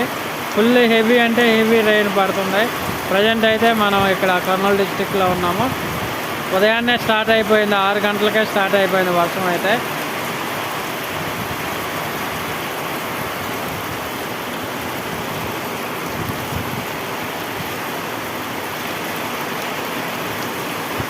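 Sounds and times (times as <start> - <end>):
heavy rain hissing: 0.0 - 21.0.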